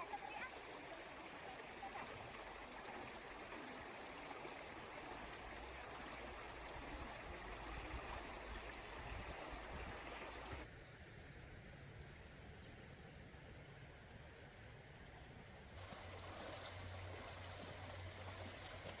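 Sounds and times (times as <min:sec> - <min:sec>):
stream rushing: 0:00.0 - 0:10.7, 0:15.8 - 0:19.0.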